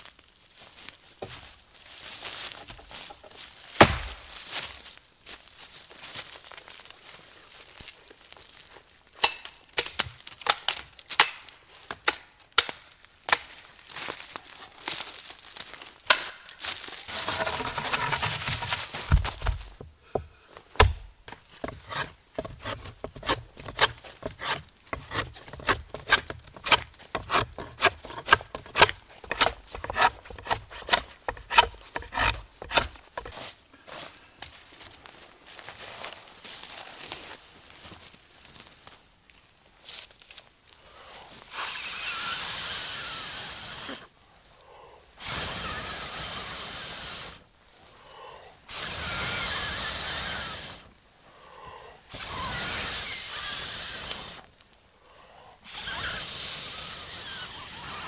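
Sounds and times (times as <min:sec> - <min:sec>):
rustling and scraping: 0:00.8 - 0:05.0, 0:16.6 - 0:38.8
sharp wooden clicks and knocks: 0:17.2 - 0:33.4.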